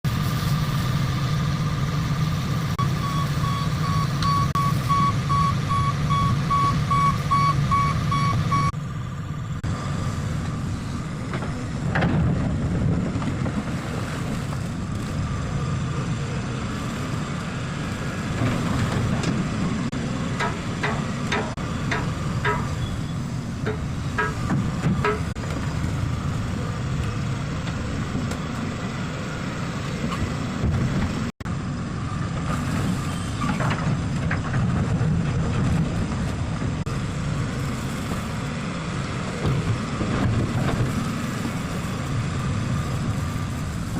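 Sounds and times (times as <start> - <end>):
diesel engine running: 0.0 - 43.9
back-up alarm beeping: 2.8 - 8.8
metallic knocks: 20.3 - 22.9, 23.6 - 25.4.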